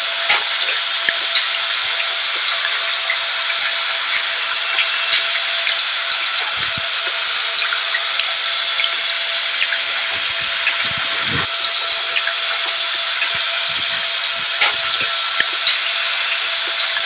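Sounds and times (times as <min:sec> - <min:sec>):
vacuum cleaner motor running: 0:10.0 - 0:11.6.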